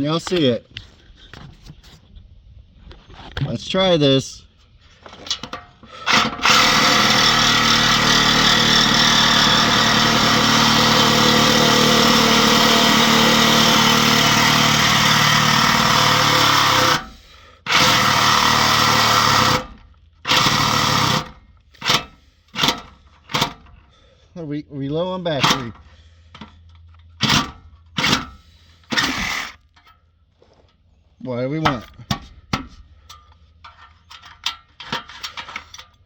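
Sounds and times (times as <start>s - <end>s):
power tool cutting steel pipe: 6.0s - 23.6s, 25.4s - 25.8s, 27.2s - 29.6s.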